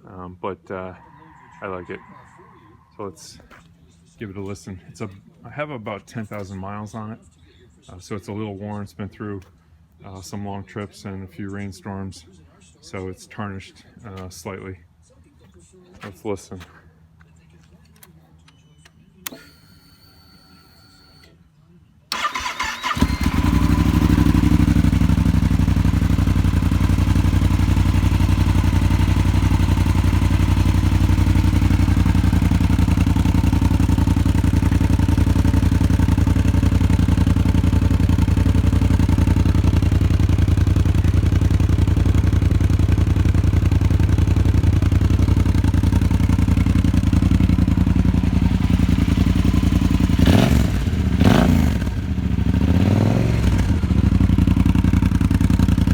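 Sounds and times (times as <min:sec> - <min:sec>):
motorcycle engine starting and idling: 0:19.2 - 0:20.4, 0:22.1 - 0:55.9
engine revving: 0:22.1 - 0:34.0, 0:46.7 - 0:55.9.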